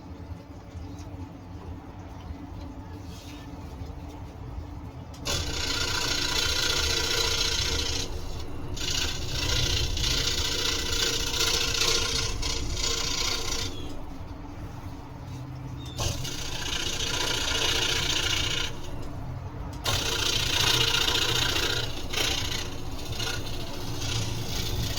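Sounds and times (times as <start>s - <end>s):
scroll saw cutting wood: 5.2s - 14.2s, 15.9s - 19.2s, 19.8s - 24.9s.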